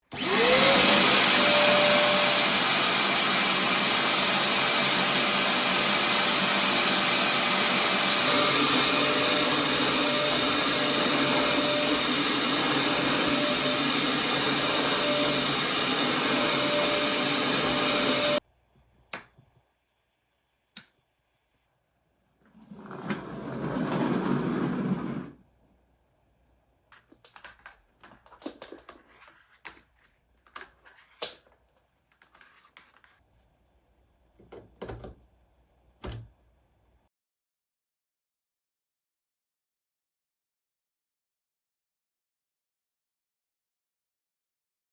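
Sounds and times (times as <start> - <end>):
vacuum cleaner motor humming: 0.1 - 18.4, 22.7 - 25.4.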